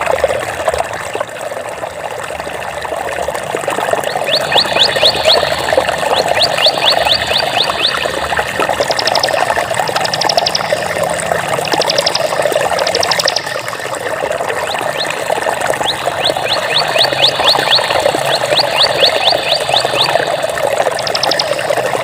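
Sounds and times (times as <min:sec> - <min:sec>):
water flowing: 0:00.0 - 0:22.0
high rising chirps: 0:04.1 - 0:11.0, 0:11.6 - 0:21.8.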